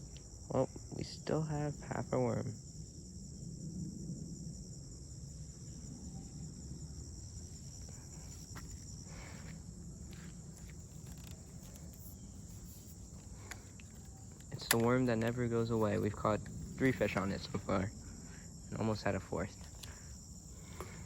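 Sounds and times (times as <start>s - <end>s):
high-pitched insect chorus: 0.0s - 21.0s
faint clicks and rustles: 7.8s - 17.7s, 19.5s - 21.0s.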